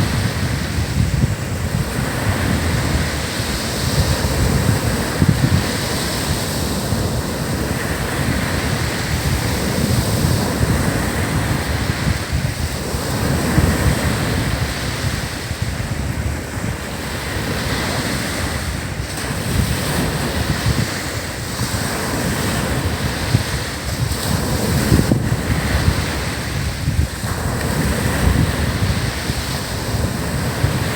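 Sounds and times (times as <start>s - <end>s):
ocean waves breaking on beach: 0.0s - 30.9s
wind buffeting microphone: 0.0s - 30.9s.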